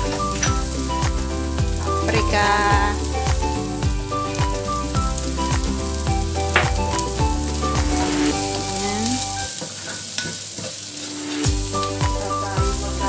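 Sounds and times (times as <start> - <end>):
background music: 0.0 - 9.6, 10.9 - 13.0
vegetables sizzling in oil: 0.0 - 13.0.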